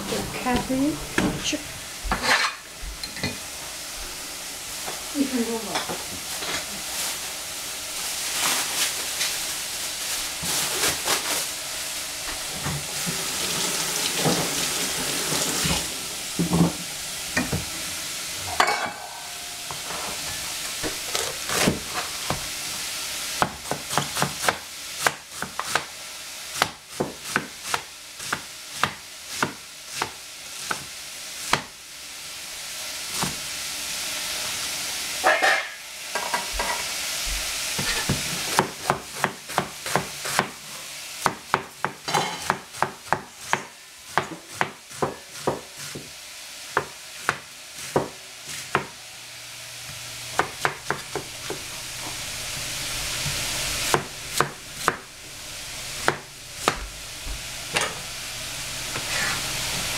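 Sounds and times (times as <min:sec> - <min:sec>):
vegetables sizzling in a pot: 0:00.0 - 0:59.9
cleaver chopping on cutting board: 0:23.4 - 0:25.9, 0:37.8 - 0:40.6, 0:41.2 - 0:46.1, 0:46.8 - 0:48.9, 0:50.4 - 0:51.6.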